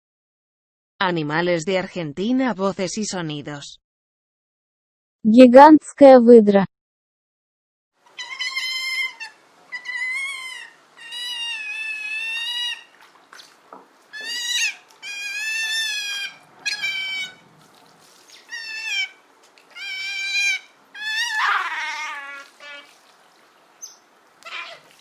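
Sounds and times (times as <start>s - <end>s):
giant otter high wavering calls: 8.1s - 13.4s, 14.1s - 17.7s, 18.3s - 23.2s, 23.8s - 25.0s.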